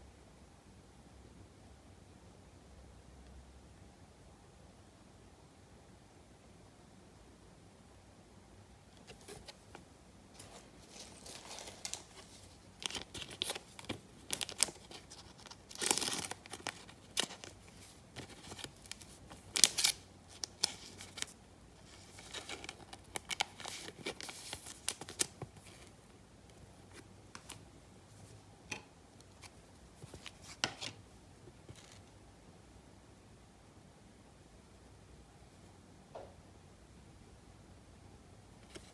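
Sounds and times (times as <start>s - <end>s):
wrappers crinkling: 10.3s - 25.9s
packaging tearing: 10.8s - 21.4s.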